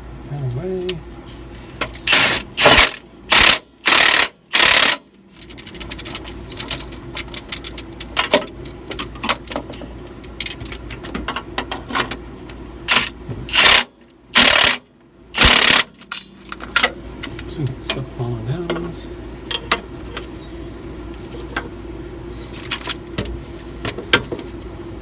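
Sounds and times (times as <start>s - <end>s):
loud ratcheting bursts: 2.1s - 5.0s, 12.9s - 15.9s
ratchet wrench clicking: 2.1s - 5.0s, 12.9s - 14.8s, 15.4s - 16.2s.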